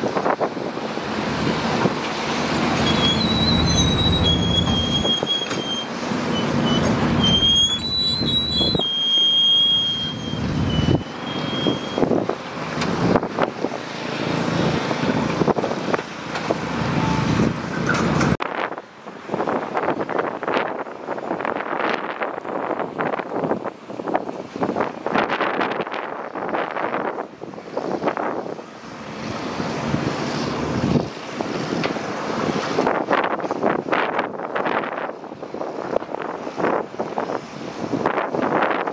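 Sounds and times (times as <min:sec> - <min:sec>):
excavator diesel engine: 0:00.0 - 0:22.0
wavering high-pitched squeal: 0:02.4 - 0:12.2.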